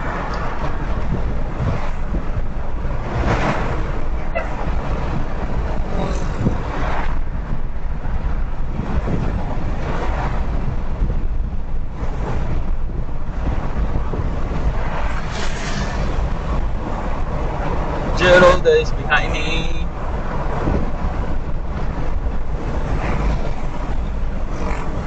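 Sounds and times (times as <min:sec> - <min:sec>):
rushing whoosh: 0:00.0 - 0:18.4
car road rumble and wind noise: 0:00.0 - 0:25.0.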